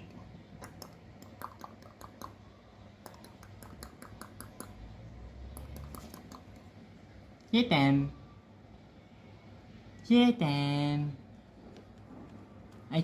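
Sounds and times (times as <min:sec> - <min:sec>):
parrot clicking and tapping: 0:00.6 - 0:02.4, 0:03.0 - 0:04.8, 0:05.5 - 0:06.7.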